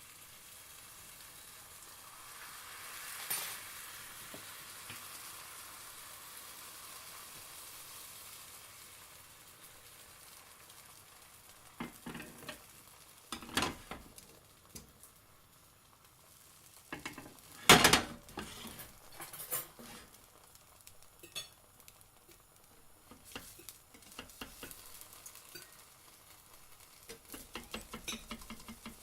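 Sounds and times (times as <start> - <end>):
pancake crackling in pan: 0.0 - 29.0
sudden sizzling burst in pan: 0.0 - 29.0
utensils clicking against pan: 11.8 - 12.6, 13.3 - 14.2, 16.9 - 20.2, 23.1 - 25.8, 27.0 - 29.0.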